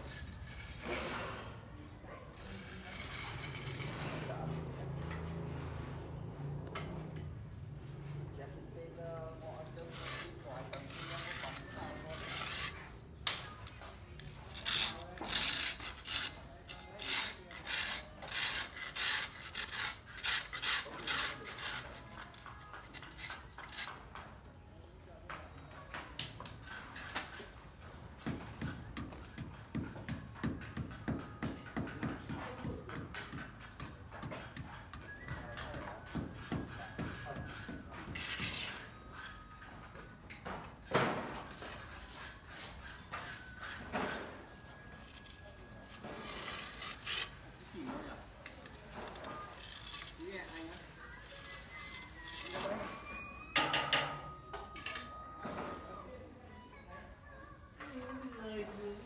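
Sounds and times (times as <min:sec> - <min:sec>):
hand tool rasping and scraping: 0:00.0 - 0:04.6, 0:09.4 - 0:24.3, 0:30.4 - 0:39.7, 0:40.8 - 0:53.2.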